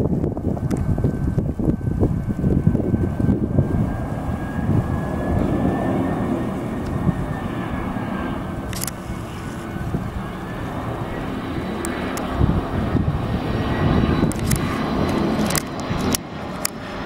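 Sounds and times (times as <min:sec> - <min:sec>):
airliner engines rumbling: 0:00.0 - 0:17.0
sharp clicks: 0:08.7 - 0:09.2, 0:14.2 - 0:16.8.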